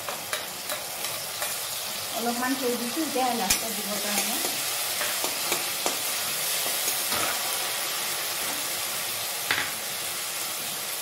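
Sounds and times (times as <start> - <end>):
food sizzling in hot oil: 0.0 - 11.0
metal spatula scraping pan: 3.5 - 7.6.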